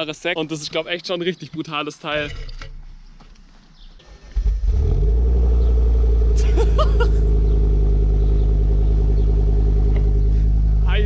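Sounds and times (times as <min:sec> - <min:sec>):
car engine starting and idling: 0:04.0 - 0:11.0.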